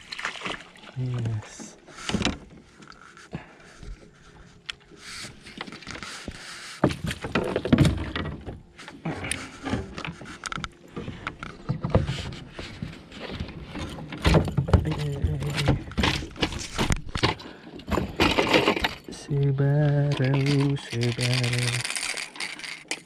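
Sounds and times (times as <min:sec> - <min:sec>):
knocks and clatter on a kayak: 0:01.5 - 0:23.0.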